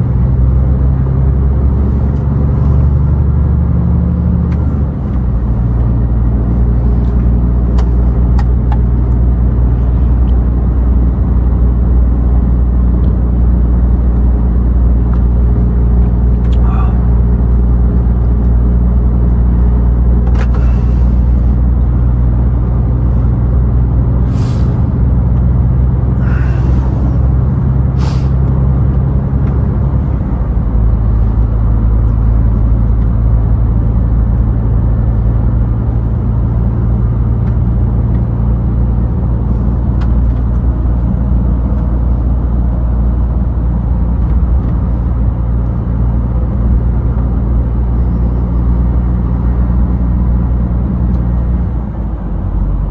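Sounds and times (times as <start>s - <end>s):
road rumble: 0.0s - 52.9s
truck diesel engine running: 0.0s - 52.9s
short hisses: 24.3s - 24.9s, 26.2s - 27.2s, 28.0s - 28.4s.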